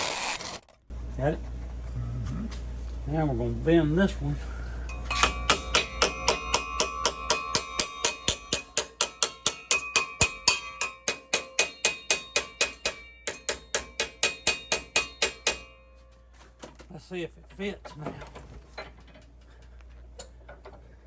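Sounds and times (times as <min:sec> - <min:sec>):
hammer striking metal: 0:04.9 - 0:16.1.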